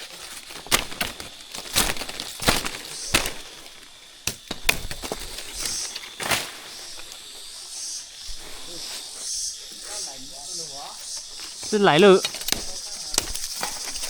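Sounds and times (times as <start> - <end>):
sharp cracks and knocks: 0.0 - 7.1, 11.6 - 14.0.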